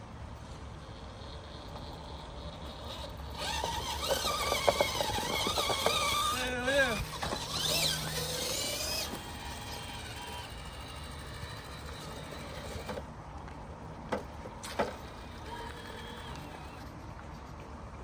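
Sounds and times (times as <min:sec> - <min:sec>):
faint electric motor whine: 0:00.0 - 0:18.0
outdoor noise: 0:00.0 - 0:18.0.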